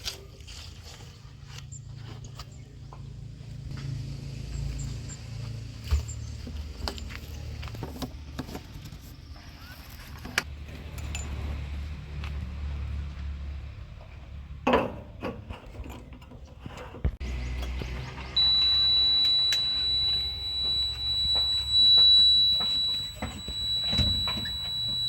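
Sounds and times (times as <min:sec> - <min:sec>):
diesel engine running: 0:01.8 - 0:09.3, 0:17.2 - 0:25.0
metallic clanks and knocks: 0:14.1 - 0:18.0.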